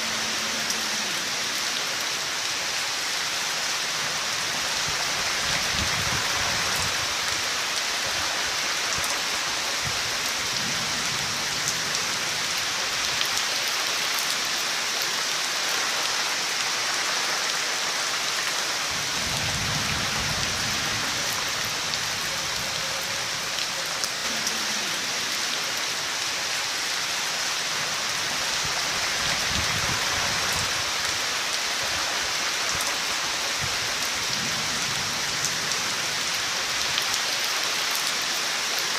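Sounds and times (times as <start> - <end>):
heavy rain: 0.0 - 38.9
low thunder rumbles: 18.9 - 22.8.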